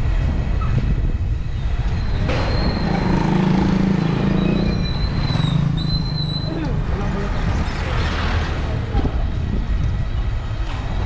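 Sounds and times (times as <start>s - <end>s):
street traffic: 0.0s - 11.0s
wind rumbling on microphone: 0.0s - 11.0s
high thin squeal: 2.0s - 3.0s.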